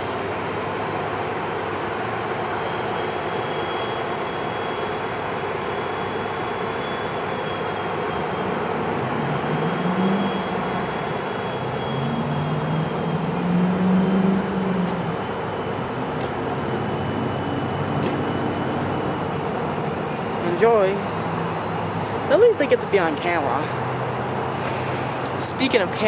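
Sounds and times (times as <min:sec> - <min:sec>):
diesel locomotive idling: 0:00.0 - 0:26.0
faint high whine: 0:02.3 - 0:19.4.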